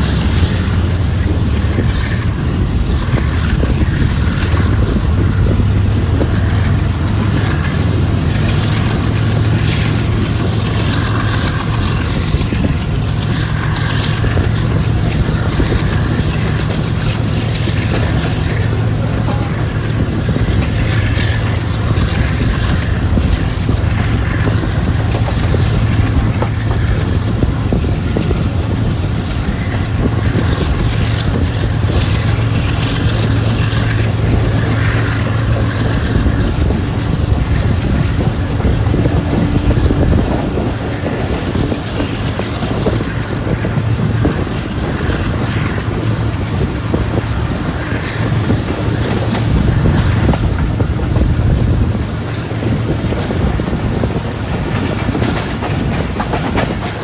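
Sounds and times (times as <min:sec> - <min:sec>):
train wheels rumbling on rails: 0:00.0 - 0:57.0
wind buffeting microphone: 0:00.0 - 0:57.0.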